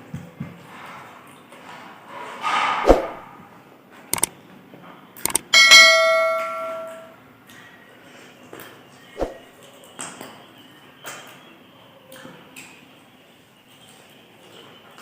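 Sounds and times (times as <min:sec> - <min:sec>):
sharp clinks and knocks: 0:05.3 - 0:07.2
metal struck ringing: 0:05.5 - 0:07.2.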